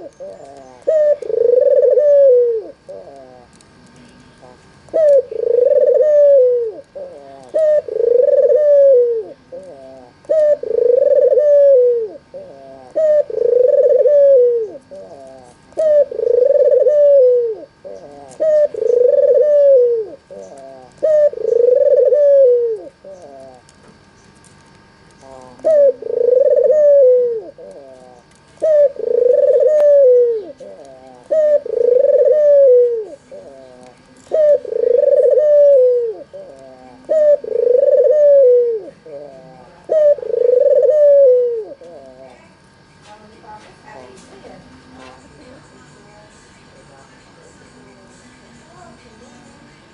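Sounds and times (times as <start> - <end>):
dove cooing: 0.0 - 23.7, 25.2 - 42.6.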